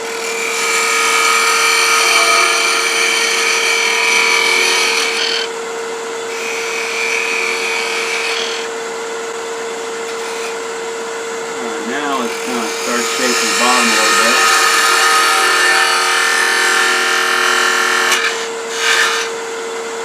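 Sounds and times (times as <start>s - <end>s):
gouge cutting spinning wood: 0.0s - 5.5s, 6.3s - 8.7s, 11.6s - 19.4s
wood lathe motor hum: 0.0s - 19.9s.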